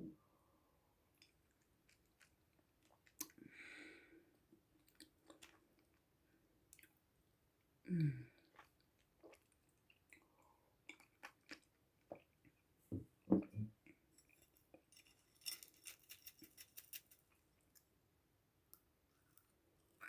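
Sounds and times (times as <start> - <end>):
chewing and mouth clicks: 4.8 - 6.0, 8.5 - 12.6.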